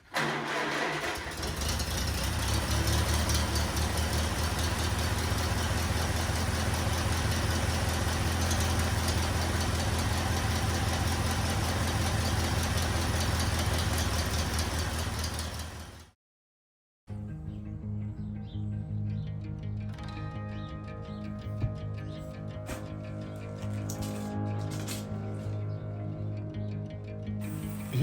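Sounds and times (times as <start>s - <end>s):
tractor engine idling: 0.0s - 16.1s.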